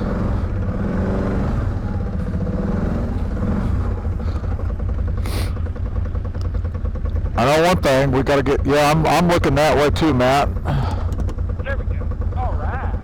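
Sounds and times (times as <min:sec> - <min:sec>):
atv engine idling: 0:00.0 - 0:13.0.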